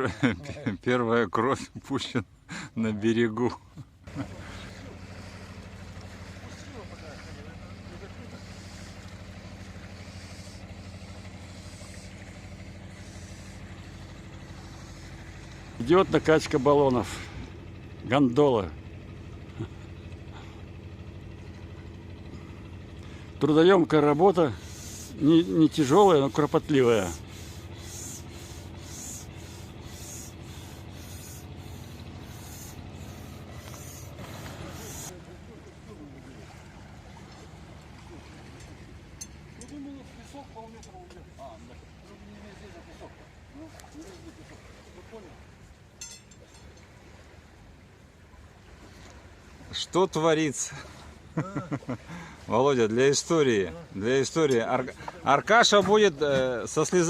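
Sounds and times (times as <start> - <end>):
motor humming: 4.0 - 43.6
air pump hissing strokes: 5.0 - 17.2, 24.1 - 35.1.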